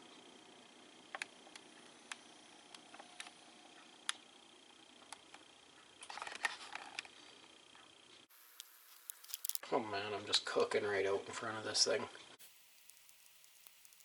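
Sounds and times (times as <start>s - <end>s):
fan heater humming: 7.0s - 10.0s, 12.4s - 14.0s
crackling clicks: 8.3s - 9.6s, 12.4s - 14.0s
light ticks and clicks: 12.5s - 14.0s.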